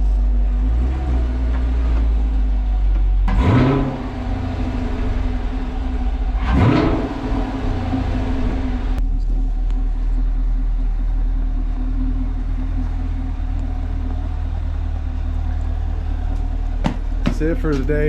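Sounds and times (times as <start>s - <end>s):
car engine idling: 0.0s - 18.0s
car engine revving: 0.0s - 18.0s.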